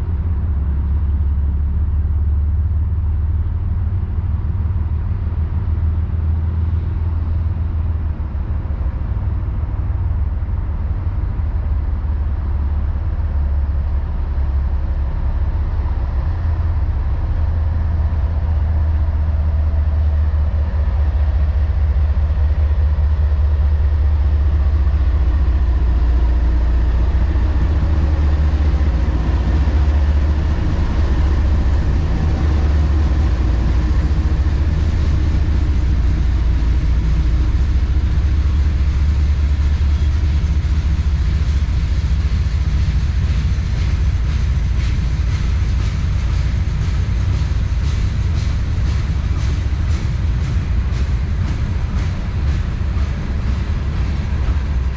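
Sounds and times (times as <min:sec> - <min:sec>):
freight train rumbling: 0:00.0 - 0:54.9
wheels clicking over rail joints: 0:23.6 - 0:54.9.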